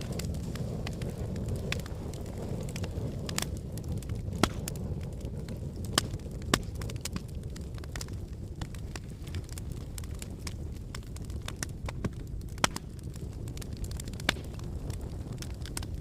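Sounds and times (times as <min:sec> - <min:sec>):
wood fire crackling: 0:00.0 - 0:16.0
sharp pops and snaps: 0:04.3 - 0:04.8, 0:05.9 - 0:16.0.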